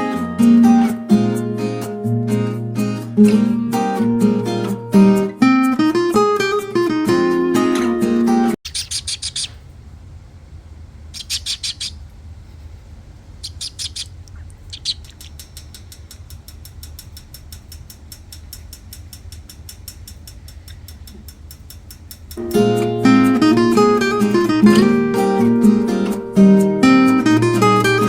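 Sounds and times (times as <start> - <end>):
parrot chirping: 8.6 - 9.7, 11.2 - 12.1, 13.4 - 15.4
parrot clicking: 11.2 - 12.0, 13.4 - 22.4.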